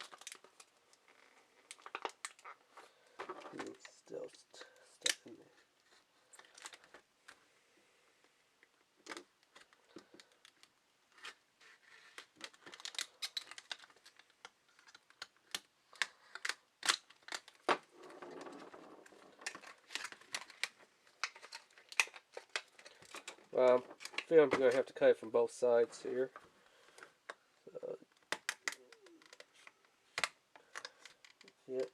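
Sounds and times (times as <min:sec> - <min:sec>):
packaging rustle: 0:09.1 - 0:24.9.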